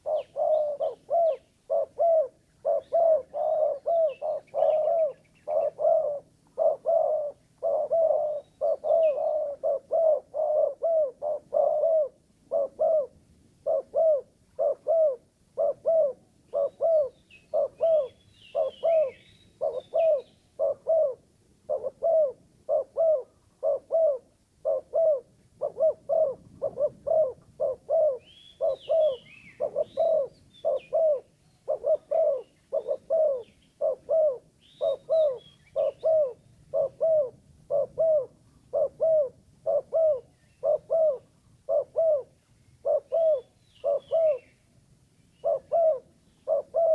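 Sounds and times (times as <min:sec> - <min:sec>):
dove cooing: 0:00.0 - 0:44.6, 0:45.4 - 0:46.9
small birds chirping: 0:34.6 - 0:36.6.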